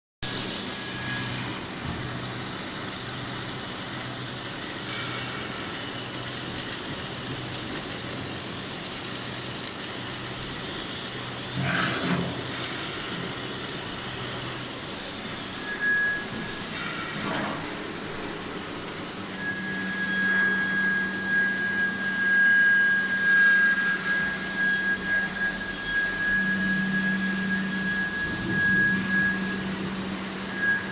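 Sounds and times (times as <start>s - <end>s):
welding equipment hum and hiss: 0.2s - 30.9s
steady high tone: 19.0s - 30.9s.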